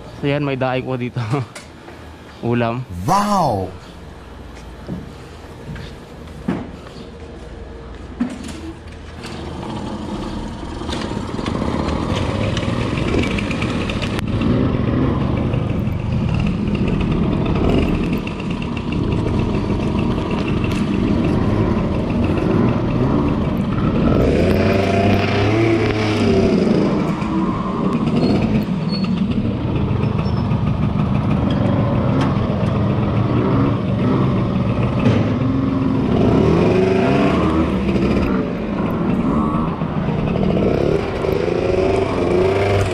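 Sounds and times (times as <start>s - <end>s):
motorcycle engine: 9.2s - 42.9s.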